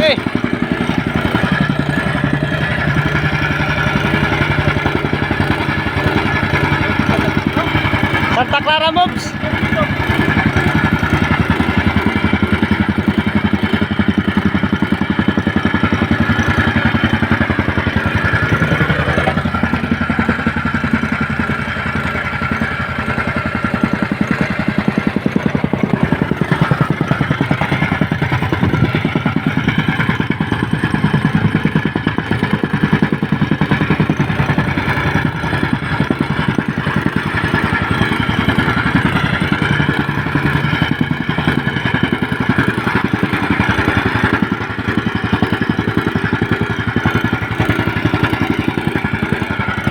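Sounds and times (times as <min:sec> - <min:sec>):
small engine running: 0:00.0 - 0:49.9.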